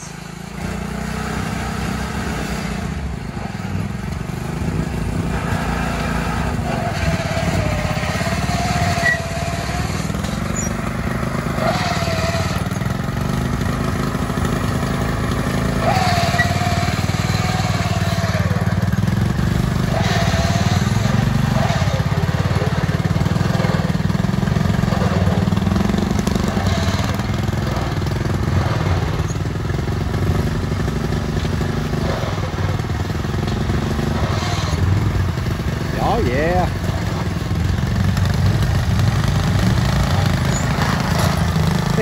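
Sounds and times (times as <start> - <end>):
small lawn mower engines running: 0.0 - 42.0.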